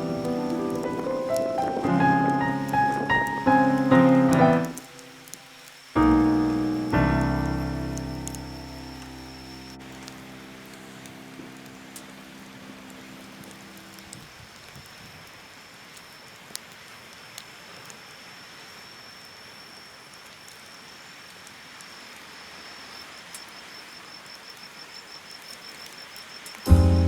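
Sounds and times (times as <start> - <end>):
music track: 0.0 - 5.3, 6.0 - 13.6, 26.7 - 27.0
insect trilling: 0.0 - 26.7
steady hiss: 0.0 - 27.0.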